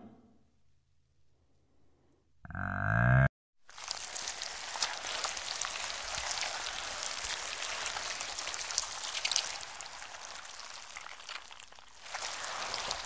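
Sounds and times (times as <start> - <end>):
rain-like crackle: 3.6 - 13.0.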